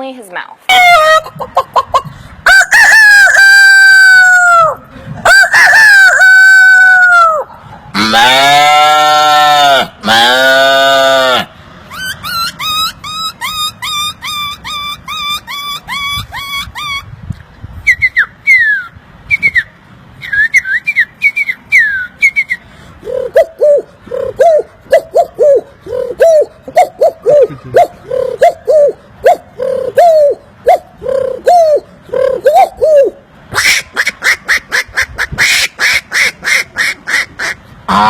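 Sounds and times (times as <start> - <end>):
man imitating cow moo: 8.0 - 11.5
whistled bird chirps: 17.8 - 22.6
low pigeon-like cooing: 23.0 - 33.2.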